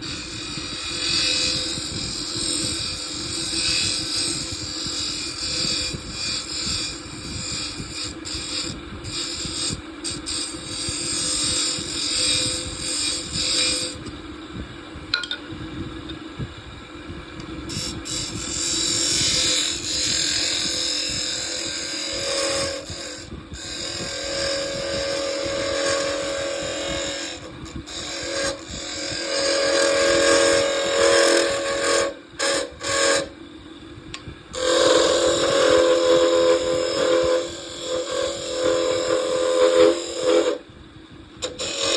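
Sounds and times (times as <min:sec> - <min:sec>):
lathe tool scraping wood: 0:00.0 - 0:14.1, 0:17.7 - 0:33.3, 0:34.6 - 0:40.6, 0:41.4 - 0:41.9
lathe motor hum: 0:17.7 - 0:33.3, 0:34.6 - 0:40.7.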